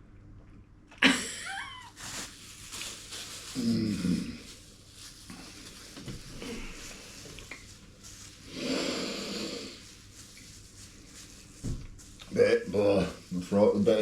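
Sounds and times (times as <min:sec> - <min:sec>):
loud noisy exhale: 0:08.5 - 0:09.8.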